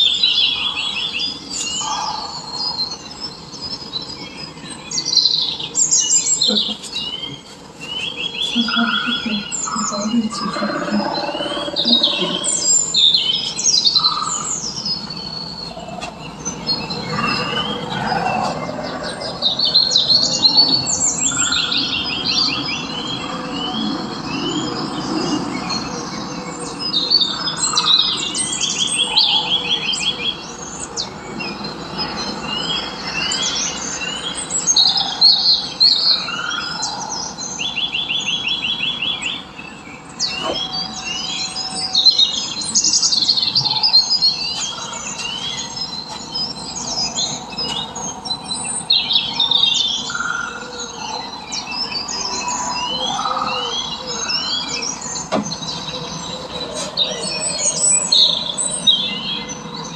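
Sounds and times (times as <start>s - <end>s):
birds chirping and singing: 0.0s - 59.9s
fast bird trills: 6.4s - 20.8s.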